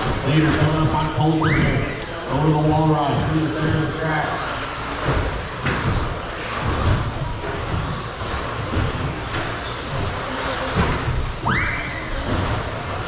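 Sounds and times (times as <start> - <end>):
model truck motors whining: 0.0 - 13.0
low thuds: 2.6 - 13.0.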